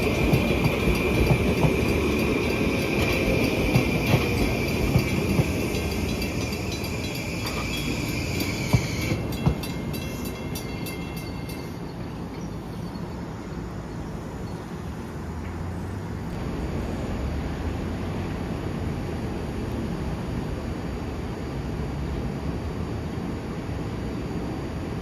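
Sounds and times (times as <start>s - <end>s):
high ringing tone with ticks: 0.0s - 13.1s
train passing with low rumble: 0.0s - 25.0s.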